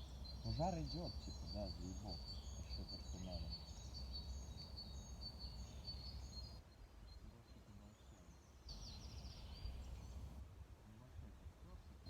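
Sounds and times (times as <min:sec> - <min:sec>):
bird trill: 0:00.0 - 0:06.6
small birds chirping: 0:00.0 - 0:10.4.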